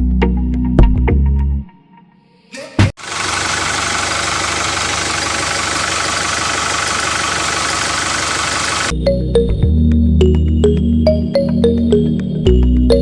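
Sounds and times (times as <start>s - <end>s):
small motor running: 3.0s - 8.9s.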